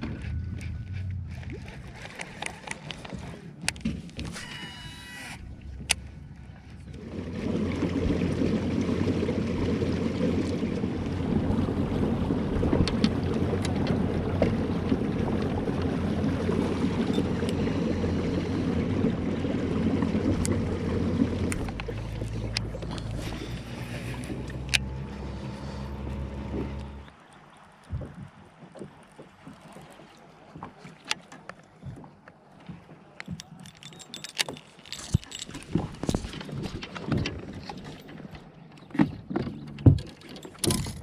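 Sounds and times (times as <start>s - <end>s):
motorboat engine rumbling: 0.0s - 41.0s.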